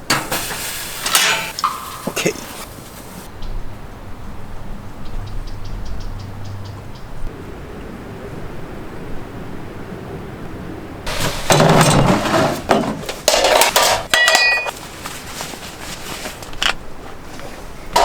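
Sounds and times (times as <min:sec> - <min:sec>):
metal cookware clattering: 0:00.0 - 0:03.2, 0:11.1 - 0:14.7
steady low hiss: 0:00.0 - 0:04.7
metallic ring: 0:01.0 - 0:02.2, 0:14.1 - 0:14.7.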